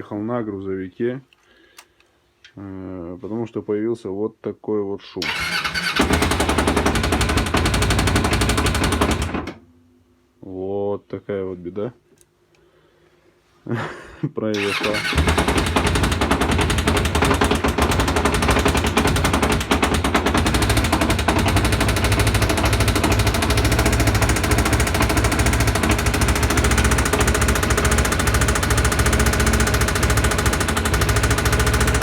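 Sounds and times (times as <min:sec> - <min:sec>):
motorcycle engine running: 0:05.4 - 0:09.5, 0:14.6 - 0:32.0
rapid knocking inside engine: 0:06.0 - 0:09.5, 0:14.6 - 0:32.0.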